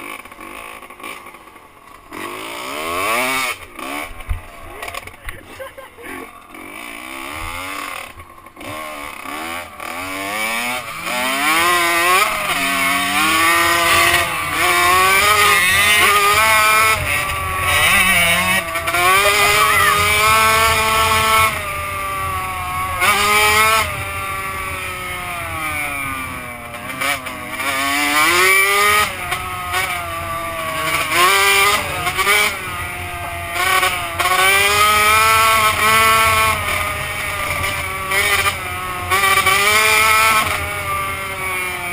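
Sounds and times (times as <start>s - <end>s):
two-stroke motocross engine revving: 0.0s - 41.9s.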